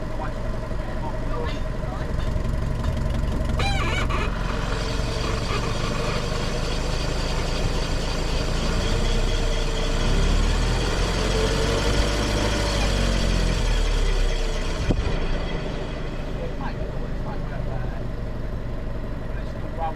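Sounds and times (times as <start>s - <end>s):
vehicle engine idling: 0.0s - 19.9s
short high-pitched squeal: 3.6s - 9.8s.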